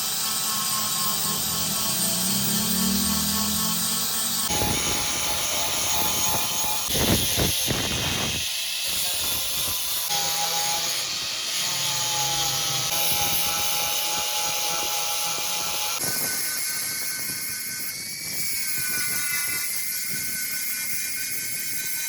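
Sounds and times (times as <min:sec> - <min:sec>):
electric grinder on metal: 0:00.0 - 0:22.0.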